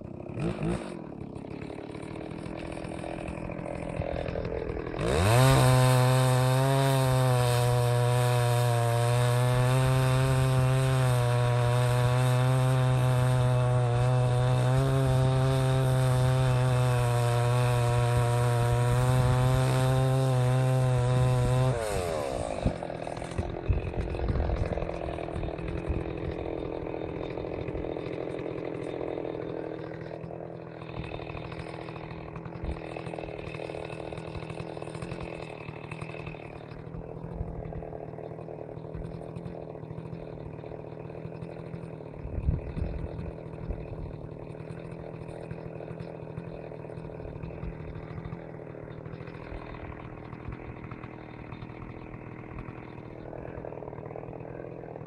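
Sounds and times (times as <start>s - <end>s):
chainsaw cutting: 0.0s - 55.0s.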